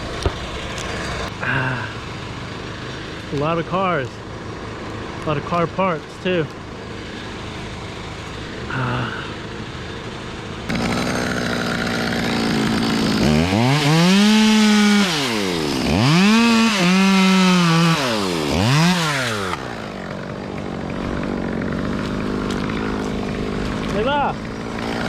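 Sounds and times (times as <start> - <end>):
chainsaw revving: 0.0 - 25.0
second chainsaw engine running: 0.0 - 25.0.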